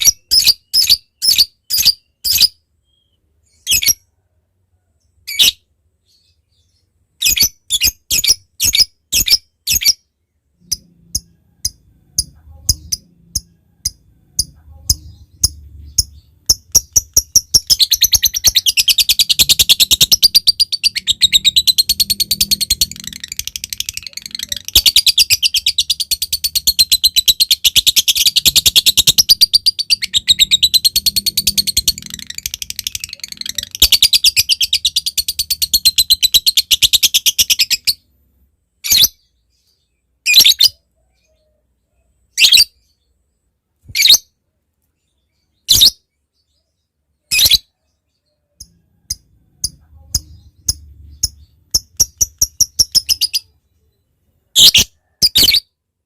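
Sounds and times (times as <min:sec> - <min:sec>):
lovebird ticking: 0:10.6 - 0:21.0
lovebird rattling chatter: 0:16.5 - 0:30.0.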